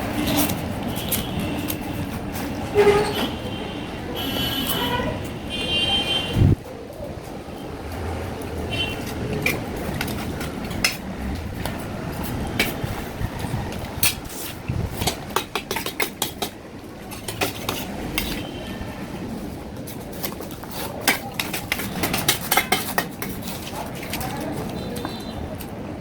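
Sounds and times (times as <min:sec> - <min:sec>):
cutlery scraping on plate: 0:14.0 - 0:18.5, 0:20.1 - 0:25.2.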